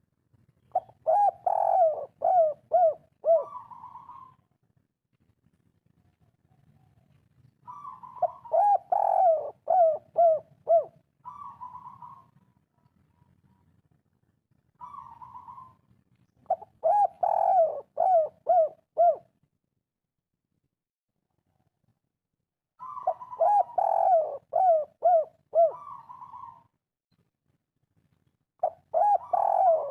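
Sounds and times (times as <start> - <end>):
dove cooing: 0.7 - 4.5, 7.6 - 12.6, 14.8 - 19.3, 22.8 - 26.7, 28.6 - 29.9.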